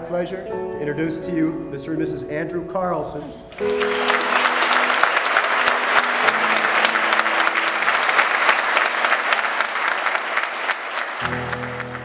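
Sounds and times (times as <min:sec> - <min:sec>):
soft background music: 0:00.0 - 0:08.7
guests applauding and cheering: 0:03.6 - 0:12.0.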